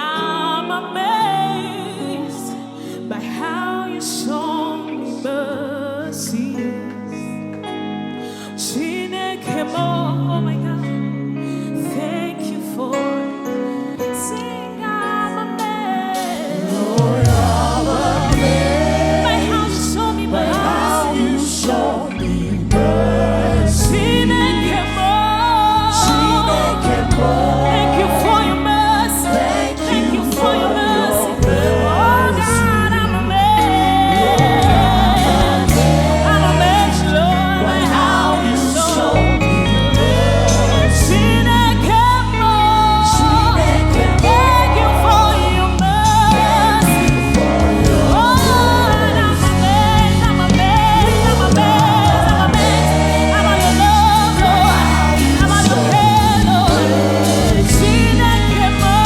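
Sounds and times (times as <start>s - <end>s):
gospel choir singing with band: 0.0s - 10.9s, 15.4s - 59.0s
keyboard chords: 0.0s - 59.0s
sustained bass: 16.8s - 59.0s
sustained bass note: 43.1s - 59.0s.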